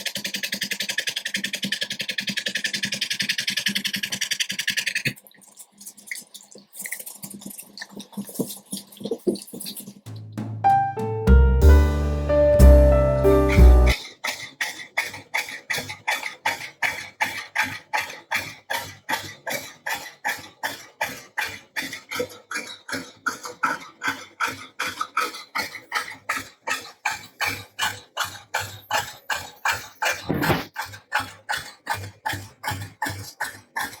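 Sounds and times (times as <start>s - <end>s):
music: 10.1s - 14.0s
dog panting: 13.2s - 34.0s.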